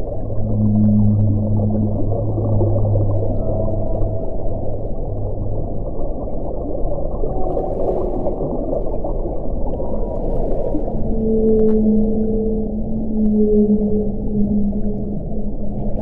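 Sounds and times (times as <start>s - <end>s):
steady low tones: 0.0s - 7.4s, 10.8s - 16.0s
deep wind howling: 0.0s - 16.0s.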